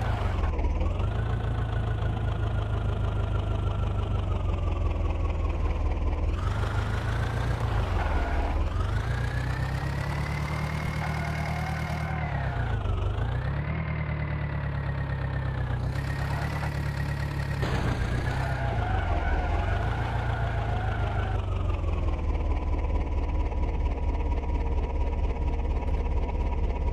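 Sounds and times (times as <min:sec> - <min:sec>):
tractor diesel engine revving: 0:06.1 - 0:24.5.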